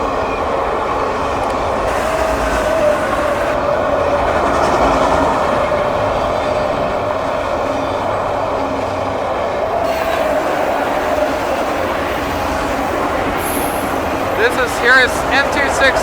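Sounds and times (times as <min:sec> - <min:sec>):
steady train whine: 0:00.0 - 0:16.0
train wheels rumbling on rail: 0:00.0 - 0:16.0.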